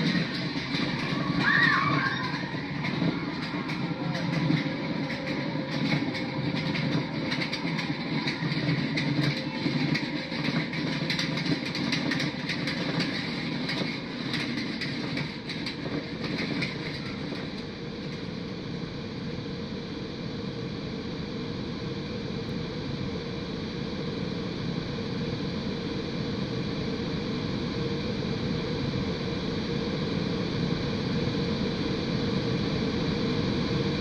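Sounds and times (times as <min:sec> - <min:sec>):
rapid clicking and clattering: 0:00.0 - 0:18.5
ride vehicle rumbling on track: 0:00.0 - 0:19.1.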